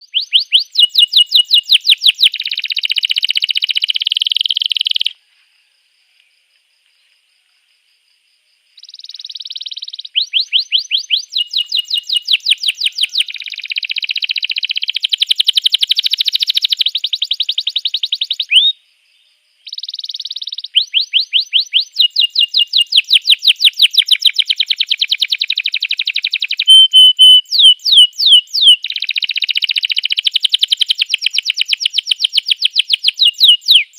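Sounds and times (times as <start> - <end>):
canary singing: 0.0 - 5.2, 8.8 - 18.8, 19.7 - 33.9.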